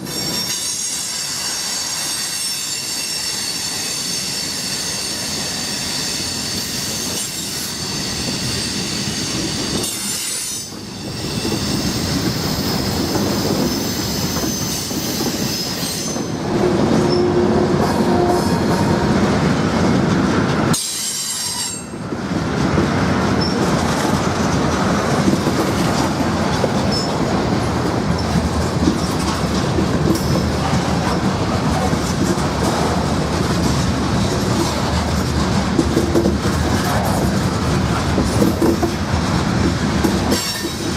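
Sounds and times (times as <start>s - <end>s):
train wheels squealing: 0.0s - 18.9s, 20.7s - 22.1s, 23.4s - 23.6s, 26.9s - 27.1s, 40.3s - 40.9s
train rolling rumble: 0.0s - 40.9s
wheels clicking over rail joints: 22.0s - 40.9s.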